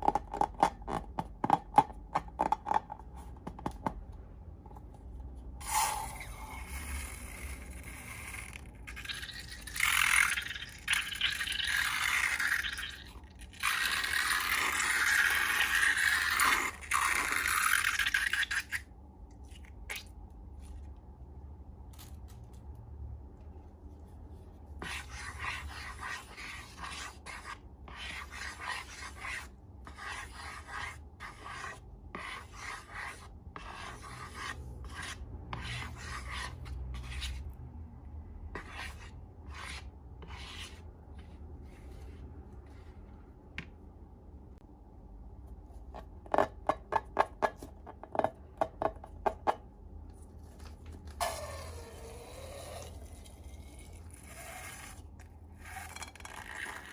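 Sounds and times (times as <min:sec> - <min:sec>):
tools scraping slime: 0:51.2 - 0:56.9.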